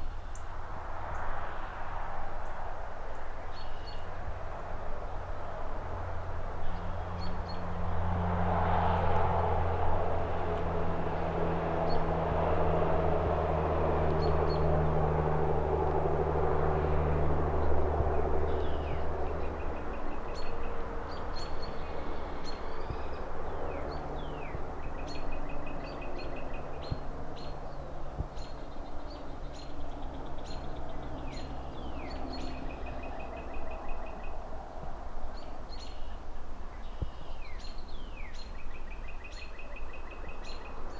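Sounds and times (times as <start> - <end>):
distant traffic hum: 0.0 - 40.9
passing vehicle rumble: 0.0 - 40.9
small birds chirping: 18.4 - 34.6, 35.2 - 40.9.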